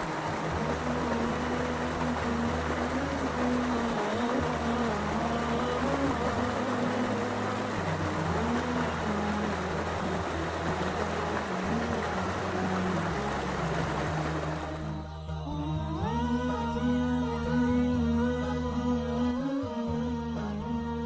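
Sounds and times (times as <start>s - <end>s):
water rushing: 0.0s - 15.1s.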